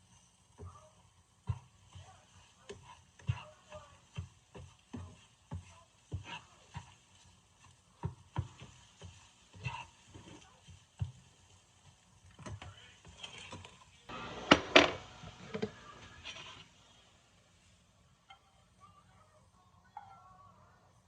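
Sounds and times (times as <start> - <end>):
kitchen clicks and knocks: 14.4 - 16.6.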